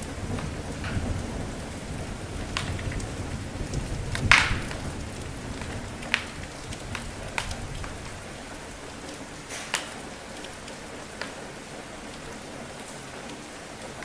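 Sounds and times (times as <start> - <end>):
low rumble of thunder: 0.0 - 9.5
steady rain falling: 0.0 - 14.0
wood fire crackling: 0.0 - 14.0.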